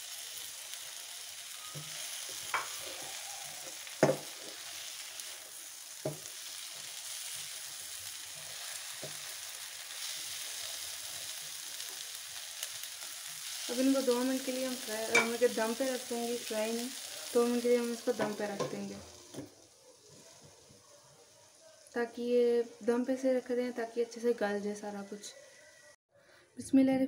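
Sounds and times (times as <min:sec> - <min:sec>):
food sizzling in a frying pan: 0:00.0 - 0:25.9
spatula knocking on pan: 0:04.0 - 0:04.3, 0:06.0 - 0:06.3, 0:15.1 - 0:15.4, 0:18.1 - 0:19.5.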